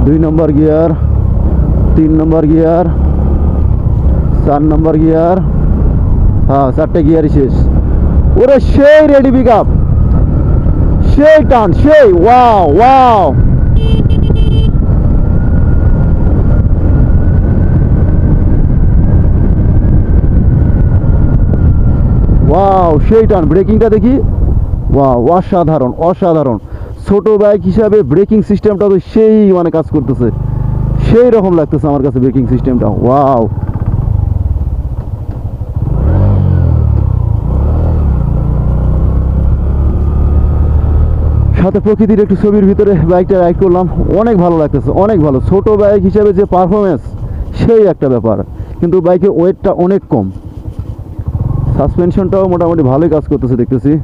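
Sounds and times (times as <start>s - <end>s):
motorcycle engine running: 0.0s - 54.0s
wind rumble on microphone: 0.0s - 54.0s.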